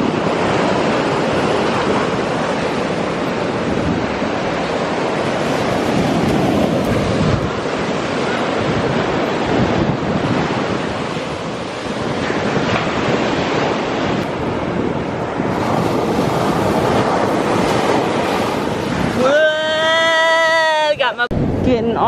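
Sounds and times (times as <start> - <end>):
ocean waves washing ashore: 0.0 - 21.6
wind buffeting microphone: 0.0 - 22.0.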